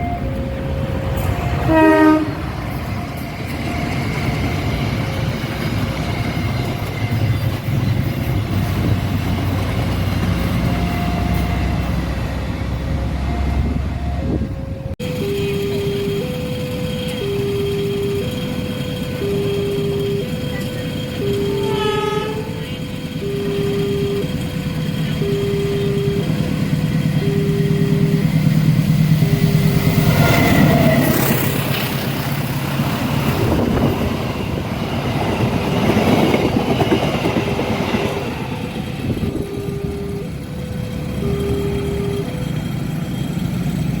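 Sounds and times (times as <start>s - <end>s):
level crossing alarm: 0.0s - 44.0s
passing train rumble: 0.0s - 44.0s
train horn: 1.1s - 3.9s, 21.2s - 24.2s.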